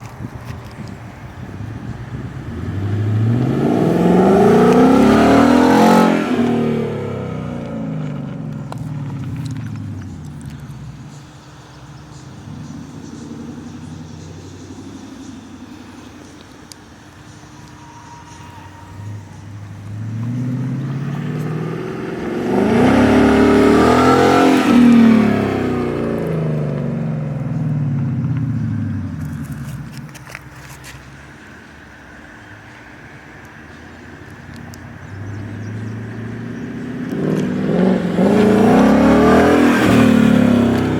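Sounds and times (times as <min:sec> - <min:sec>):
car engine accelerating past: 0:01.2 - 0:16.4, 0:17.3 - 0:30.8, 0:34.5 - 0:40.9.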